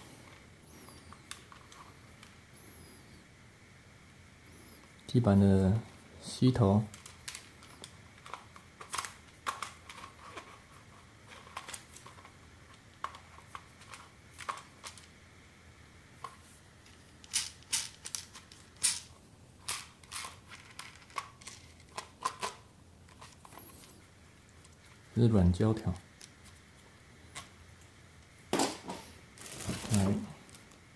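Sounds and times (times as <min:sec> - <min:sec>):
plastic attachments clicking and tapping: 0:06.9 - 0:10.5
packaging rustling: 0:29.4 - 0:30.8.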